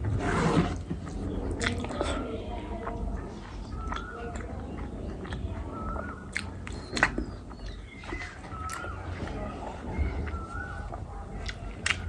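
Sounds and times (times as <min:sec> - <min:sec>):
person chewing: 0:01.0 - 0:02.2, 0:02.8 - 0:09.4, 0:10.0 - 0:12.0.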